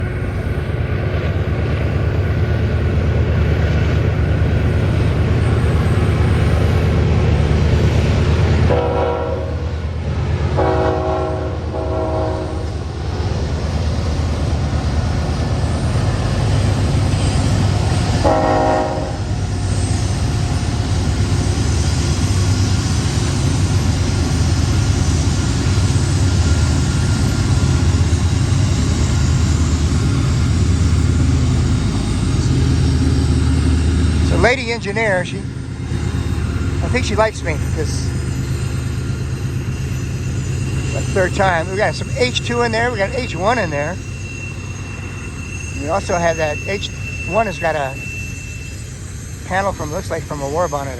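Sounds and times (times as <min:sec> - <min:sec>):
diesel locomotives rumbling: 0:00.0 - 0:50.9
locomotive air horn: 0:08.7 - 0:09.7, 0:10.6 - 0:12.6, 0:18.2 - 0:19.3.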